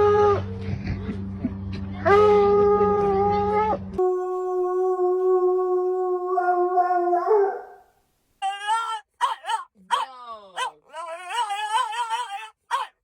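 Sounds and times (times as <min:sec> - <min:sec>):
dog whining: 0:08.4 - 0:13.0.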